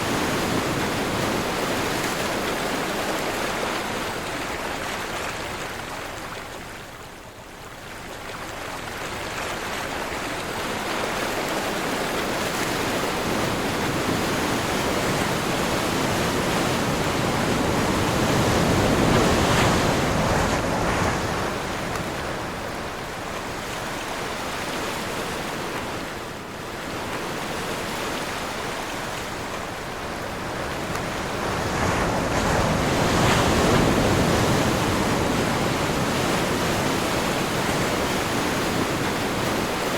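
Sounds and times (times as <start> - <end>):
ocean surf rolling in: 0.0 - 5.7, 9.7 - 39.9
wind: 0.0 - 39.9.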